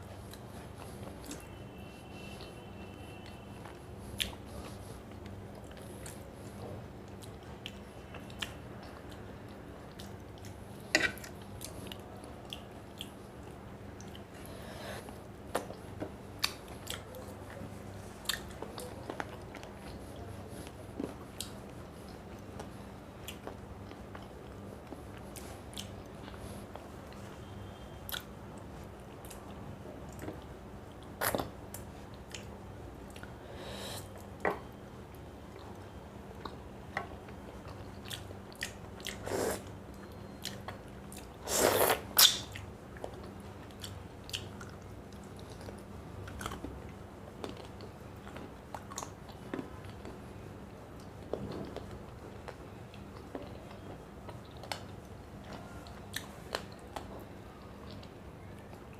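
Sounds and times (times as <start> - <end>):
steady low hum: 0.0 - 58.9
person chewing and crunching food: 2.5 - 27.3, 37.3 - 50.2, 50.9 - 57.1.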